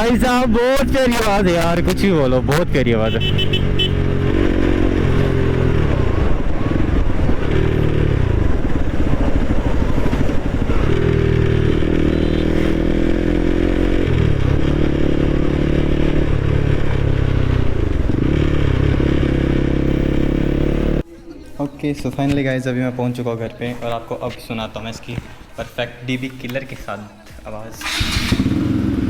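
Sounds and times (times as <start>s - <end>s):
motorcycle exhaust revving: 3.1s - 21.0s, 27.8s - 29.0s.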